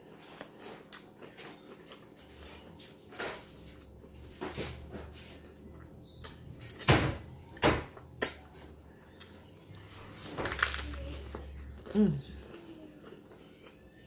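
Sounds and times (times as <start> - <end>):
taco shell crunching: 10.0 - 11.0.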